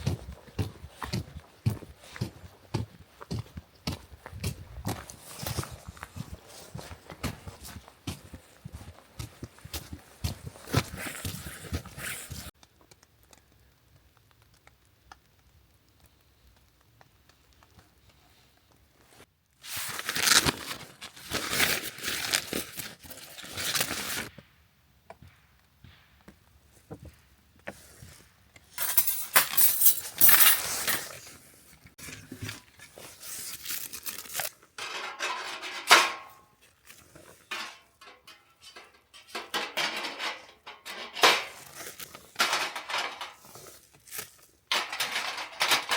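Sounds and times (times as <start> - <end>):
packaging rustling: 19.6 - 24.3, 29.3 - 34.8, 41.5 - 45.9
metal parts clattering: 28.8 - 31.2, 34.2 - 36.5, 37.5 - 43.5, 44.7 - 45.9.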